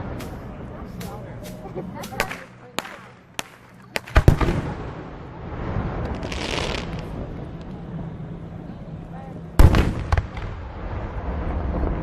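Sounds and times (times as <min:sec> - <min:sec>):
fireworks popping: 0:00.0 - 0:04.9, 0:06.0 - 0:07.8, 0:09.6 - 0:10.8
fireworks hissing and crackling: 0:00.0 - 0:08.0
firework boom with low rumble: 0:04.1 - 0:07.7, 0:09.6 - 0:12.0.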